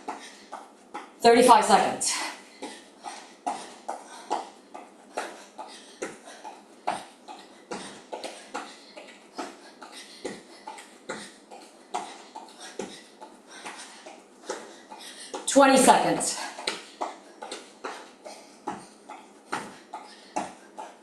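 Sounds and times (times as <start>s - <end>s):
feet thudding on floor: 18.6s - 19.8s.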